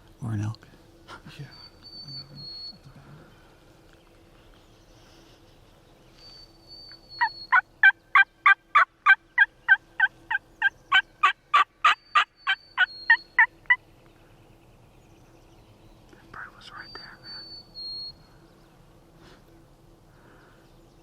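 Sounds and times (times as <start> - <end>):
wild turkey yelping: 7.2 - 13.8.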